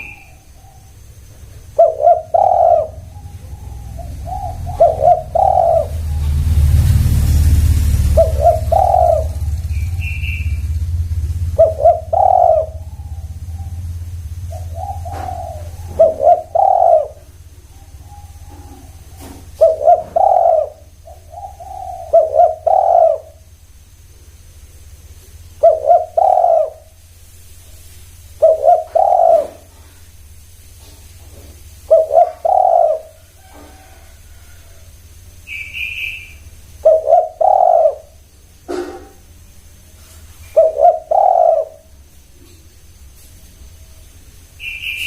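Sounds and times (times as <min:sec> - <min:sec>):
dove cooing: 0:00.0 - 0:23.6, 0:25.4 - 0:27.0, 0:28.3 - 0:30.1, 0:30.8 - 0:42.6
low rumble: 0:02.8 - 0:19.9.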